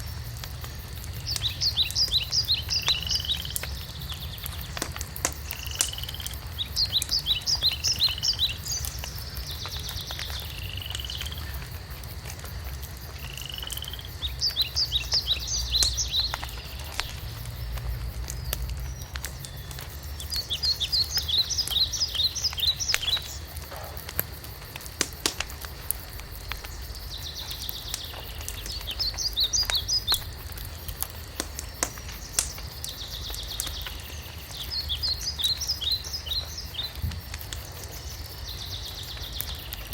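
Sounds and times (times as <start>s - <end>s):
songbird singing: 0.0s - 12.2s, 12.8s - 39.9s
wood fire crackling: 0.0s - 39.9s
steady low rumble: 15.5s - 20.8s.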